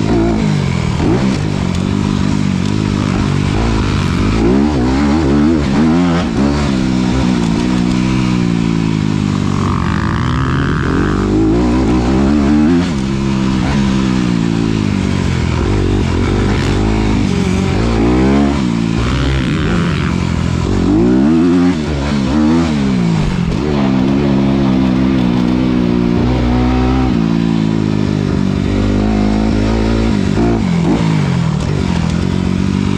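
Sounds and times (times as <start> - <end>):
dirt bike engine revving: 0.0 - 32.9.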